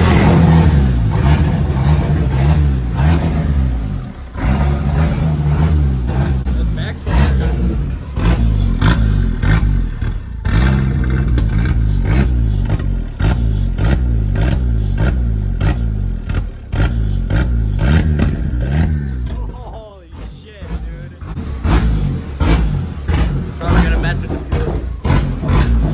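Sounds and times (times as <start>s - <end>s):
car engine revving: 0.0s - 25.9s.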